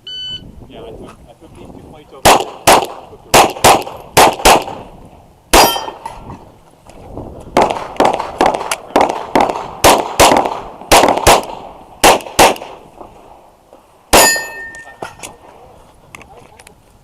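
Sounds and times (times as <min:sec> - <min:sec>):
pistol shots: 0:02.2 - 0:04.9, 0:05.5 - 0:06.1, 0:07.6 - 0:12.9, 0:14.1 - 0:14.7.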